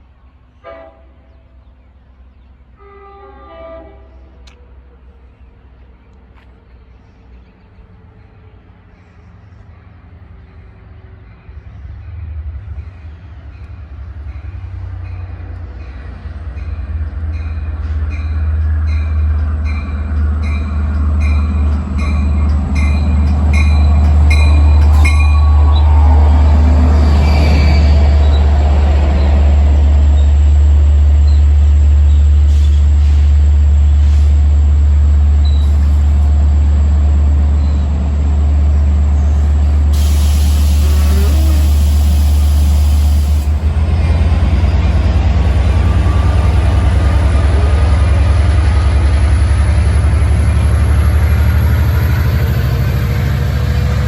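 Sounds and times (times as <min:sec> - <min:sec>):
diesel train engine drone: 0:00.0 - 0:54.0
train wheels on rails: 0:12.6 - 0:54.0.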